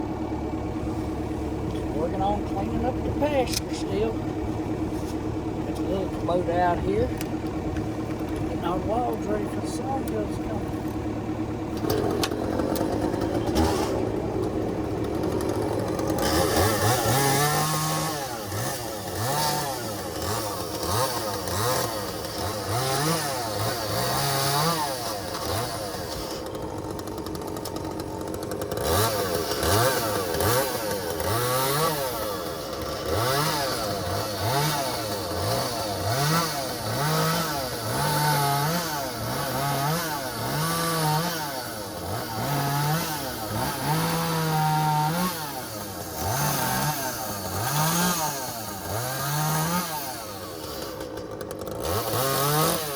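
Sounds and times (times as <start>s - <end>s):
chainsaw revving while cutting logs: 0.0s - 52.9s.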